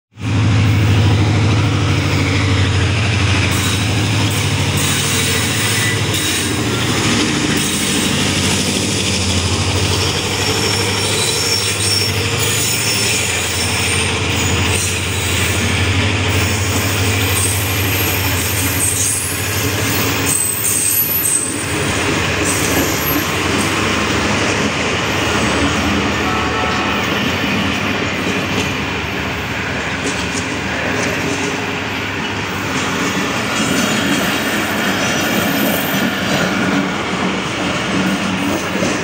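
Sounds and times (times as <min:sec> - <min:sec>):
train wheels rumbling on rail: 0:00.2 - 0:39.0
high-pitched wheel squeals: 0:04.8 - 0:06.9, 0:10.0 - 0:15.7, 0:16.4 - 0:21.7.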